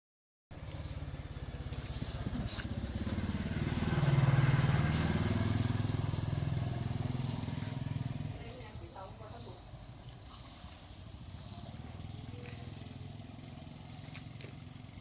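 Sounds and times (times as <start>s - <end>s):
small engine running: 0.6s - 8.8s, 11.3s - 15.0s.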